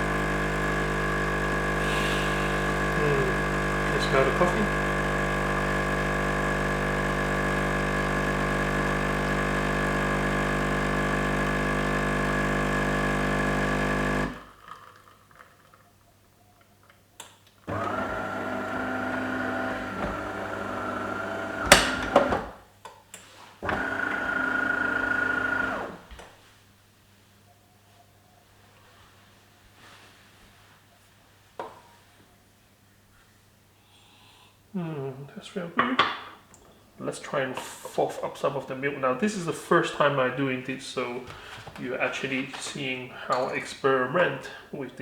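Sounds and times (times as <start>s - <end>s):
coffee machine pump buzzing: 0.0s - 14.5s, 17.7s - 22.6s, 23.6s - 26.1s.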